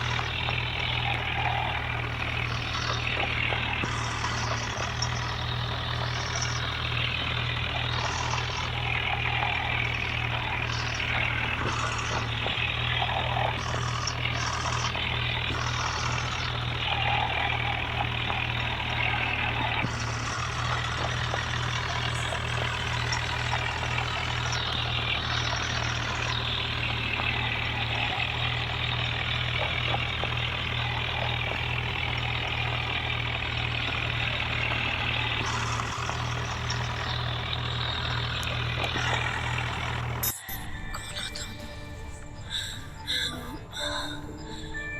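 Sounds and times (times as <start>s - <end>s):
mechanical clatter: 0.0s - 40.4s
tractor engine running: 0.0s - 44.9s.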